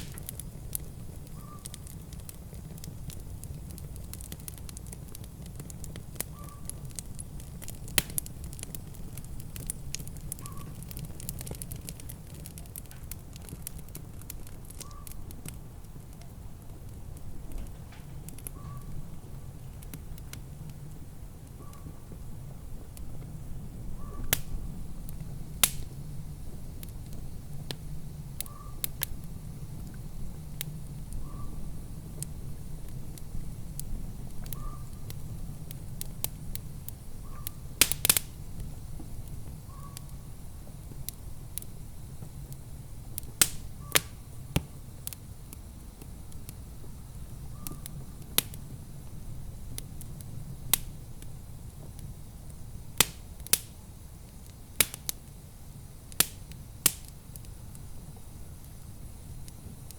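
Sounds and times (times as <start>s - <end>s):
fire popping: 0.0s - 59.9s
wood fire crackling: 0.0s - 59.9s.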